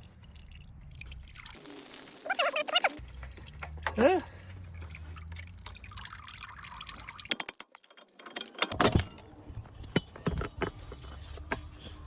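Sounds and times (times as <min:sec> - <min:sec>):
metal tools clinking: 0:07.3 - 0:12.0.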